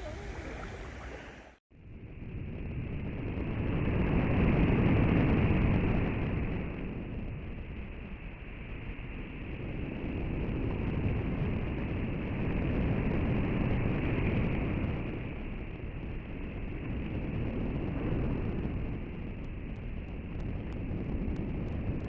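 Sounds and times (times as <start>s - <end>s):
surf: 0.0s - 1.6s
wind: 0.0s - 22.0s.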